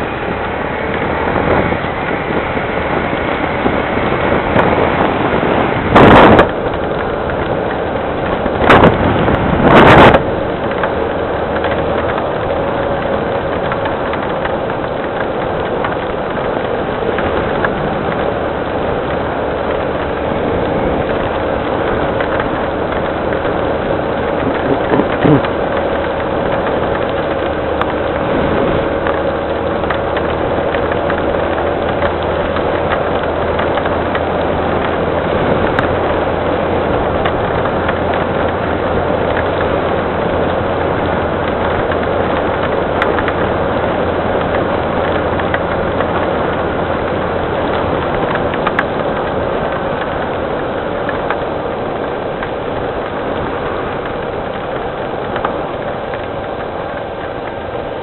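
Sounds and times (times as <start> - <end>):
engine idling: 0.0 - 58.0
rain falling: 0.0 - 58.0.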